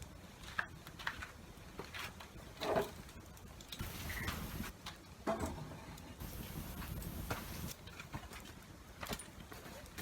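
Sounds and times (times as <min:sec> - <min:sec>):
campfire crackling and popping: 0:00.0 - 0:10.0
low hiss: 0:03.7 - 0:04.8, 0:06.0 - 0:07.8.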